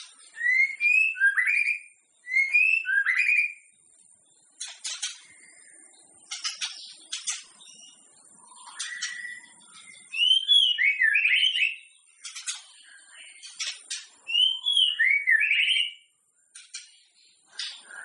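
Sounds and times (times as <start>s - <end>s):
bird singing whistled phrases: 0.0s - 3.7s, 6.7s - 16.1s, 17.5s - 18.0s.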